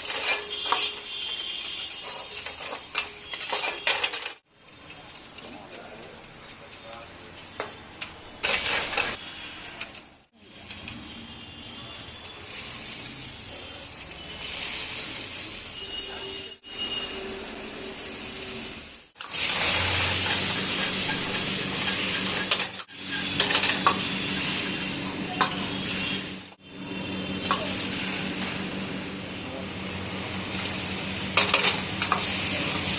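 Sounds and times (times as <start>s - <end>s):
metal spatula clattering on pan: 0.0s - 1.1s, 20.0s - 24.0s, 31.4s - 32.4s
dumplings sizzling in a pan: 8.4s - 16.0s, 16.7s - 32.9s.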